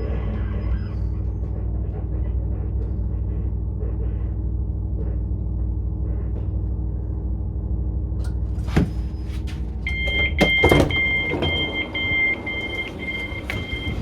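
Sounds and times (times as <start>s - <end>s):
train running rumble: 0.0s - 14.0s
train doors clunking: 8.2s - 14.0s
train door warning beeps: 9.8s - 14.0s.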